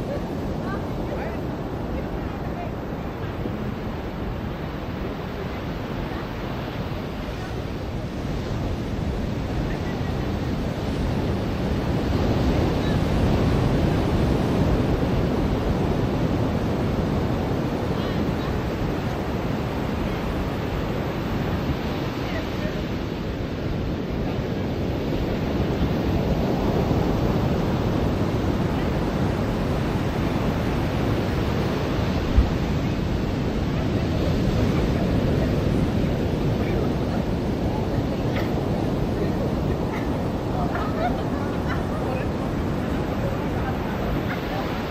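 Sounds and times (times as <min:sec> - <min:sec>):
ocean surf on a beach: 0:00.0 - 0:44.9.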